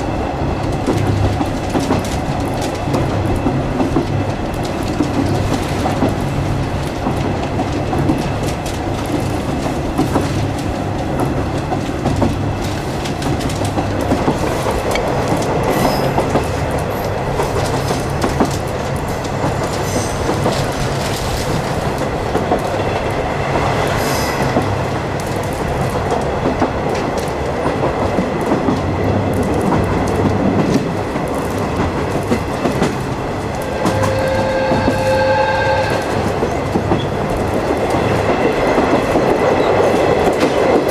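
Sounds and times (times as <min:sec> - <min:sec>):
train rumbling along track: 0:00.0 - 0:40.9
wheels clicking over rail joints: 0:36.1 - 0:40.9.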